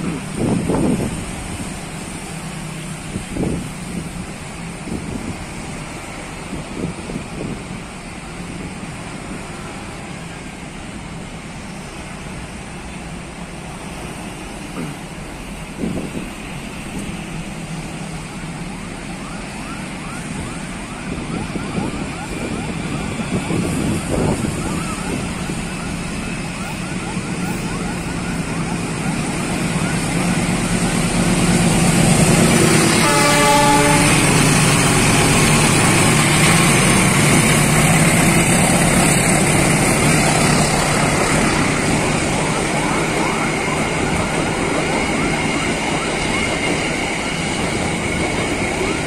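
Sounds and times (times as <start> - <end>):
diesel locomotive passing: 0.0 - 49.0
train horn: 32.4 - 35.4.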